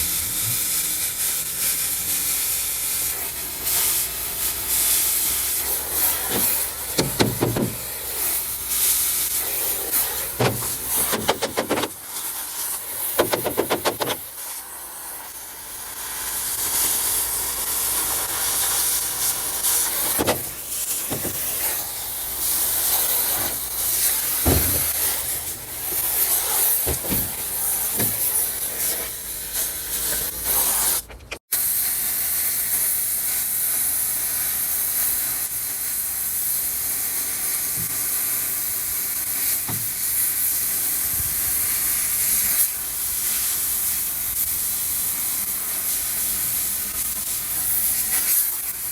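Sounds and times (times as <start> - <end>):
cutting torch hissing: 0.0 - 48.9
sharp pops and knocks: 6.3 - 7.9, 10.4 - 12.0, 13.2 - 14.3, 20.1 - 21.7, 24.4 - 25.2, 26.8 - 28.4, 39.7 - 40.0.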